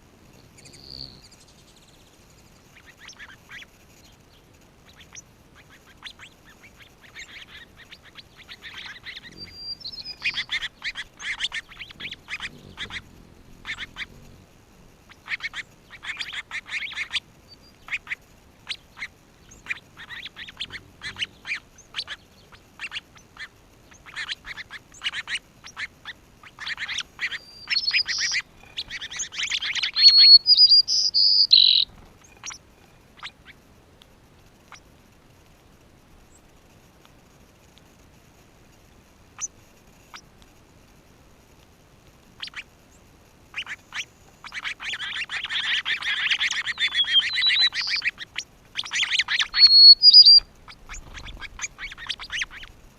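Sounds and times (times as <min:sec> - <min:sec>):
birds chattering: 0:00.0 - 0:33.6, 0:43.5 - 0:52.7
short high bird whistles: 0:05.0 - 0:13.0, 0:26.6 - 0:31.9, 0:43.6 - 0:52.6.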